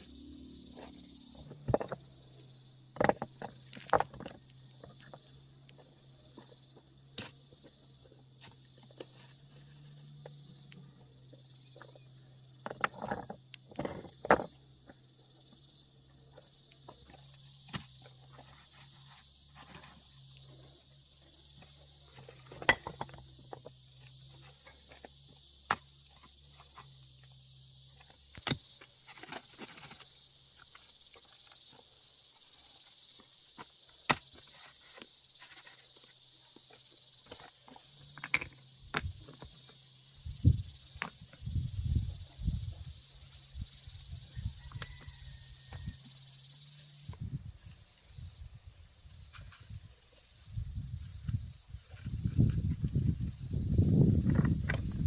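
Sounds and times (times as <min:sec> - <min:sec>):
insects chirring: 0:00.0 - 0:55.0
sharp knocks and clatters: 0:02.9 - 0:05.3.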